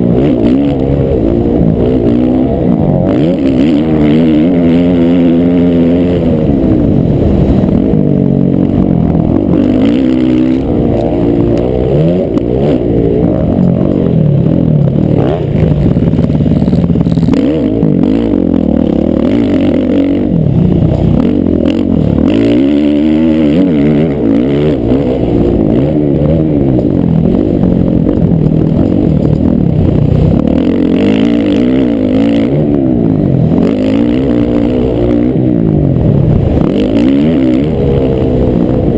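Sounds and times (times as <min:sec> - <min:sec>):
motocross bikes revving: 0:00.0 - 0:38.9.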